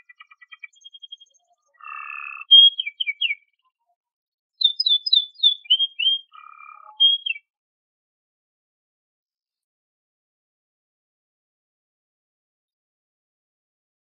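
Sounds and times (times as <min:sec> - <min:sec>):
canary singing: 0:00.0 - 0:03.6, 0:04.6 - 0:07.5.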